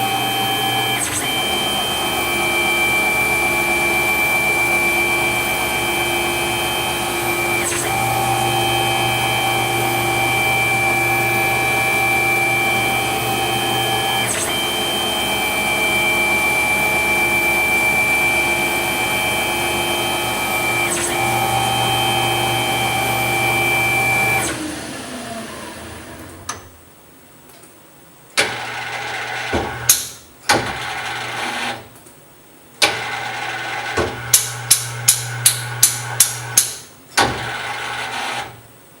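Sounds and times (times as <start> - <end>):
lathe spindle whining: 0.0 - 26.5
machine stop-start sounds: 0.0 - 26.6.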